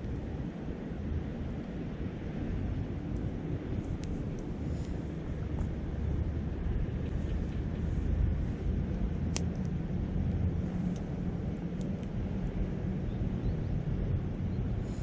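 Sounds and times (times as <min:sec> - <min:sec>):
wind rumble: 0:00.0 - 0:15.0
campfire crackling and popping: 0:08.7 - 0:11.1.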